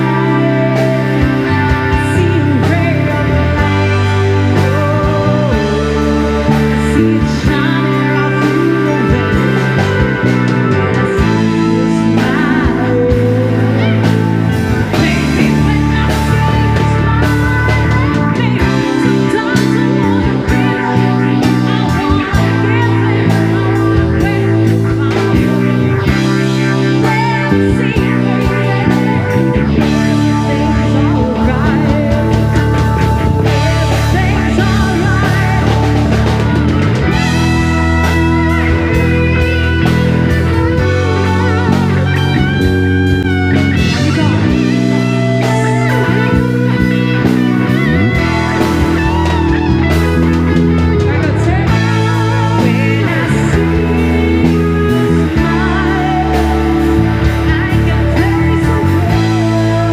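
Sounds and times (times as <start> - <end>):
lead guitar melody bending: 0.0 - 59.9
live rock band playing: 0.0 - 59.9.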